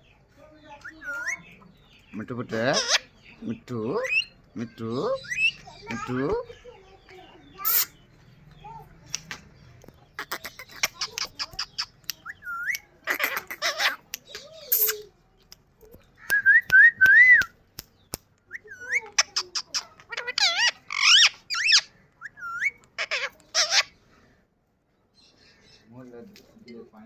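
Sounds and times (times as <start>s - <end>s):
parrot chattering squawks: 2.5s - 4.3s, 7.5s - 8.0s, 10.2s - 15.1s, 18.5s - 24.0s.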